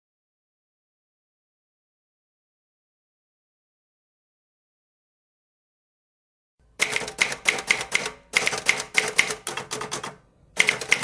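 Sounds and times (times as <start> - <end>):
rapid sharp mechanical clacks: 6.8 - 11.0.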